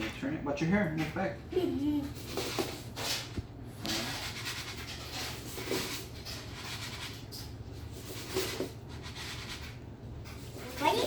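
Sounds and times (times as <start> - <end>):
bird seed rustling and scraping: 3.9 - 10.9.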